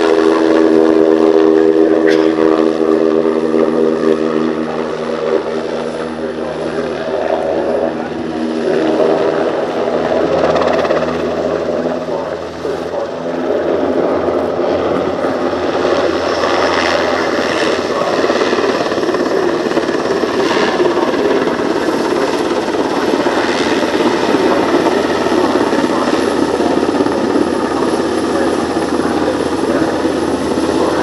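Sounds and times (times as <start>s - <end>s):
helicopter flying overhead: 0.0s - 31.0s.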